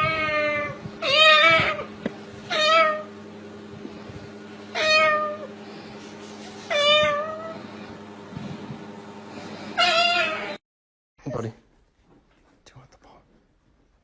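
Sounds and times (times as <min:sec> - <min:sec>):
cat meowing: 0:00.0 - 0:01.9, 0:02.5 - 0:03.1, 0:04.7 - 0:05.5, 0:06.7 - 0:07.6, 0:09.8 - 0:10.6.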